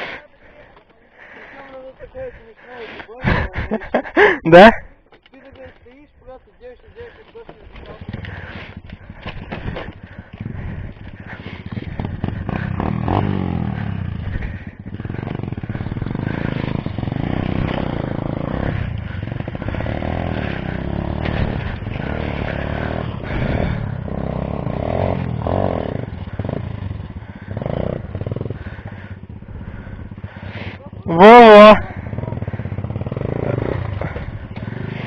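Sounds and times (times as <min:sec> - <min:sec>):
motorcycle engine revving: 0:07.0 - 0:35.0.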